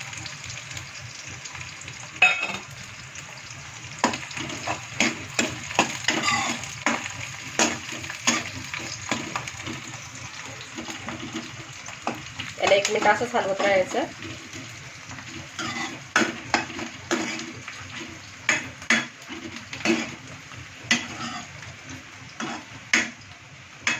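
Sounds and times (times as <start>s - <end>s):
onions sizzling in hot oil: 0.0s - 23.9s
spoon scraping and knocking pan: 2.2s - 2.7s, 4.0s - 10.1s, 10.7s - 20.2s, 20.8s - 21.5s.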